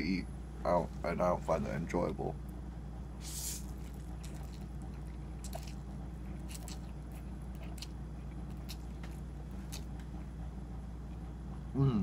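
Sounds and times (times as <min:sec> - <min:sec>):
steady low hum: 0:00.0 - 0:12.0
person chewing noodles: 0:03.2 - 0:10.4.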